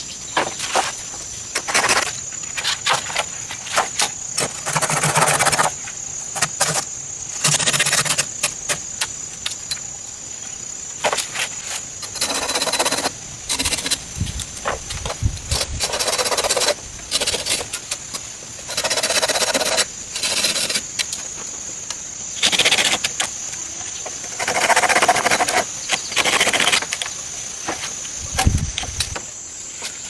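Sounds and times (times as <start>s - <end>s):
high-pitched insect drone: 4.0s - 29.7s
rasping scraping: 15.4s - 20.9s, 24.2s - 26.8s.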